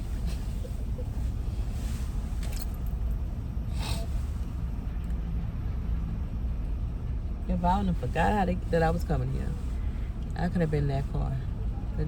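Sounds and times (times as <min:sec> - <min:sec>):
car idling from inside cabin: 0:00.0 - 0:04.9.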